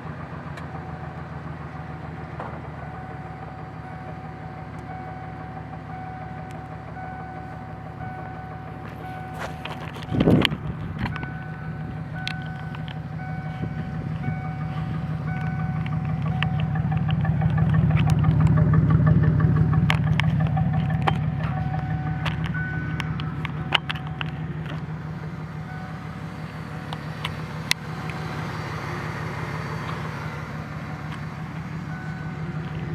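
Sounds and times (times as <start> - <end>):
car engine revving: 0.0 - 32.9.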